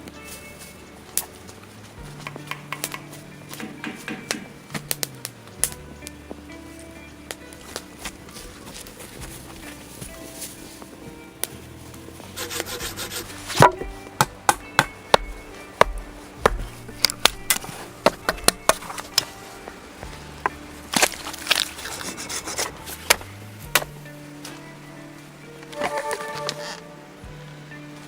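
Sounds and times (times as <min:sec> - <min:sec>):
soft background music: 0:00.0 - 0:28.0
wood knocks and clicks: 0:02.2 - 0:05.0.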